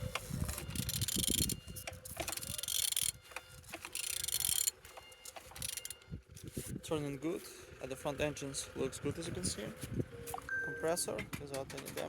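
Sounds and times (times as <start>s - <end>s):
ratchet wrench clicking: 0.1s - 6.0s.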